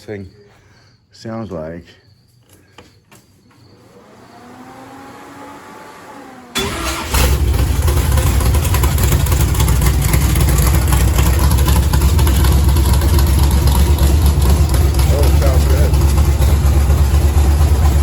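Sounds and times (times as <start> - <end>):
vee eight engine running loud: 3.7 - 18.0.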